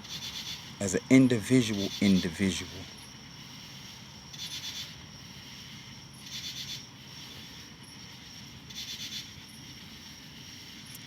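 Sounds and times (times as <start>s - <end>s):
insects chirping: 0.0s - 11.0s
thin high whine: 0.8s - 3.8s.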